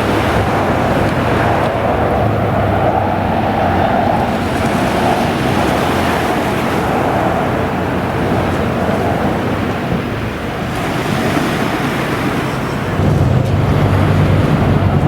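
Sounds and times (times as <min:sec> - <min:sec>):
jet engines passing low: 0:00.0 - 0:15.0.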